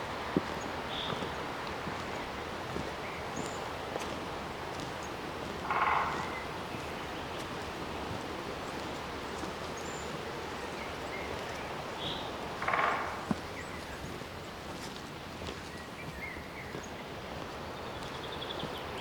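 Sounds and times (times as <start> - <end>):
short raspy call: 5.6 - 6.6, 12.6 - 13.3.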